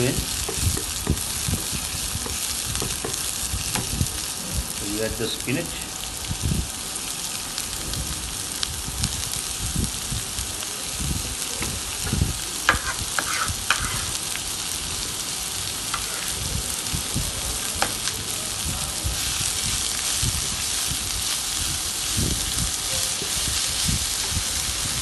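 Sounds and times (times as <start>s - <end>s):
spinach sizzling in oil: 0.0s - 25.0s
stirring strokes: 12.7s - 14.2s, 16.0s - 16.5s, 19.0s - 25.0s.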